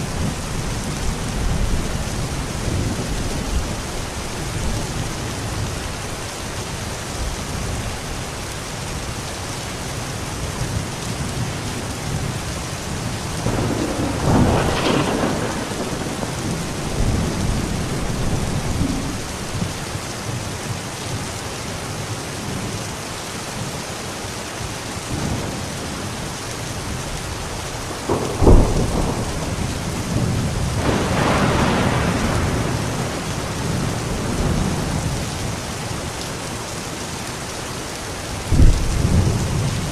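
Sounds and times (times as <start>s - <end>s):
thunder rumbling and cracking: 0.0s - 6.0s, 10.6s - 20.4s, 25.1s - 36.2s, 38.4s - 39.9s
steady rain falling: 0.0s - 39.9s.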